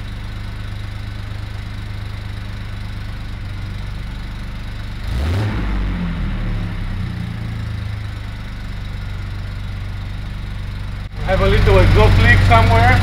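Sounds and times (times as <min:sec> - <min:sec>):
car engine idling: 0:00.0 - 0:13.0
man talking: 0:11.2 - 0:13.0.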